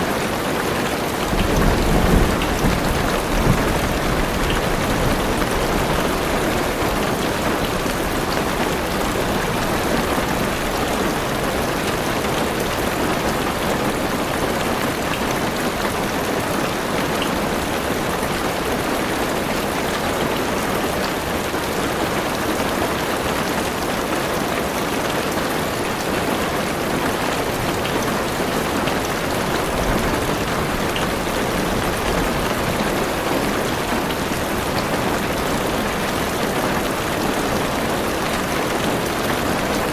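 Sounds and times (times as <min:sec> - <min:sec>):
heavy rain on car roof: 0:00.0 - 0:39.9.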